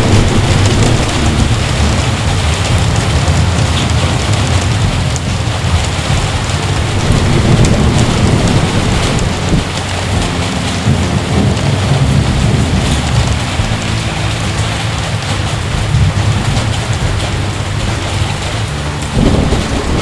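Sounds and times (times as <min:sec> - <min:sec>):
heavy rain falling: 0:00.0 - 0:20.0
low rolling thunder: 0:00.0 - 0:20.0.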